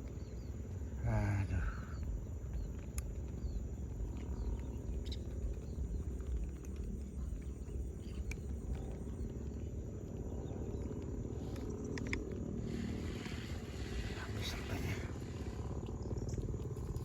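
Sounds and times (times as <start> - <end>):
bird chirps: 0.0 - 17.0
low rumble: 0.0 - 17.0
light clicks: 2.4 - 12.5.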